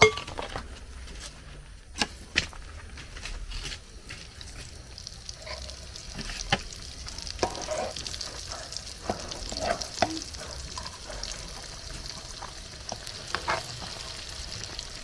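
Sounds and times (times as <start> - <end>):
food sizzling in hot oil: 2.0 - 15.0
utensil knocking on pan: 7.4 - 7.8, 9.0 - 11.0.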